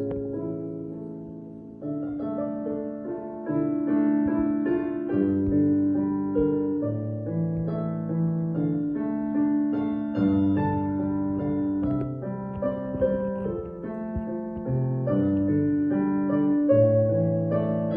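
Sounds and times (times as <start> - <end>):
slow solo piano piece: 0.0 - 17.9.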